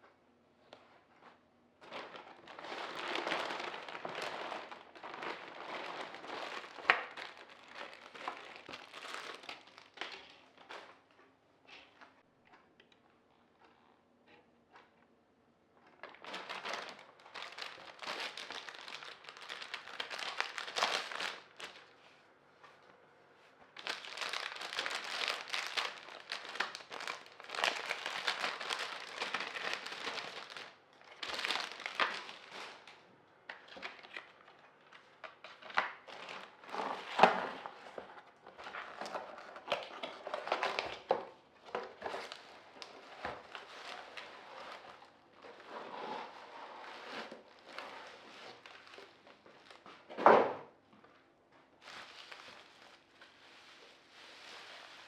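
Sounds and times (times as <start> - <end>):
packaging crinkling: 1.8 - 10.9, 16.0 - 22.0, 23.7 - 45.6, 46.9 - 49.8, 51.8 - 55.0.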